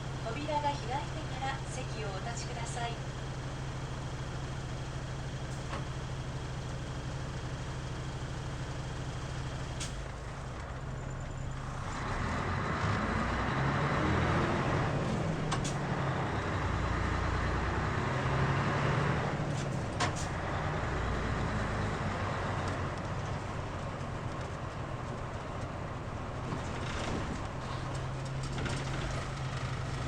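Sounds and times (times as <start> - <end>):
bus diesel engine accelerating: 0.0 - 30.0.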